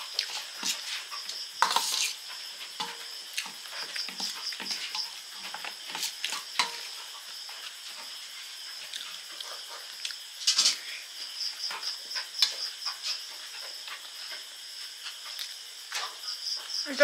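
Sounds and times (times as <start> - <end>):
crunchy chewing: 0.0 - 10.9
crickets chirping: 0.0 - 17.0.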